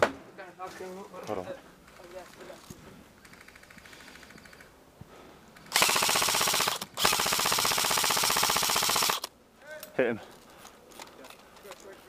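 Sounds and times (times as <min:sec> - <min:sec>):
airsoft gun firing full auto: 0:05.7 - 0:09.3.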